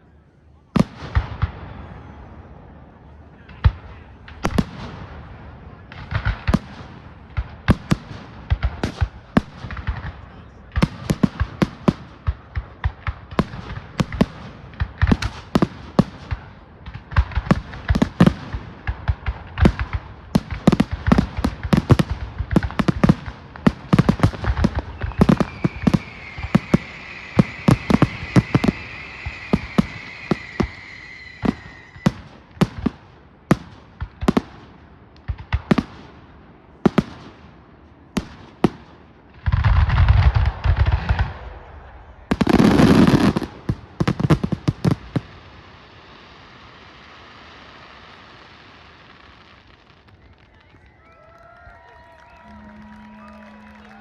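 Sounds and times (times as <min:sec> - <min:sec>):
firework bangs and crackles: 0:00.6 - 0:54.0
falling firework whistle: 0:24.7 - 0:32.4, 0:49.8 - 0:54.0.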